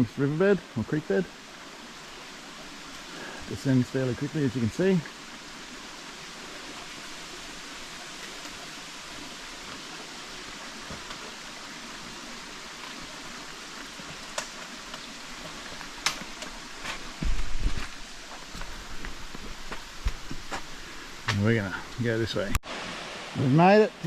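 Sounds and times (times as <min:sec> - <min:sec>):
creek water cascading: 0:00.0 - 0:24.0.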